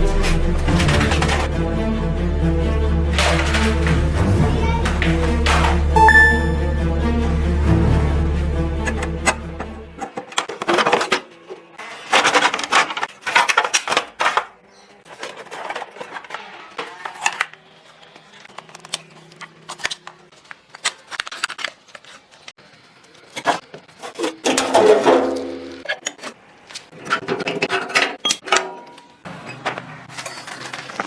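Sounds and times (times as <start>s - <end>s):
parts clattering and scraping: 0.0s - 1.9s, 3.1s - 6.9s, 8.8s - 17.6s, 23.3s - 31.0s.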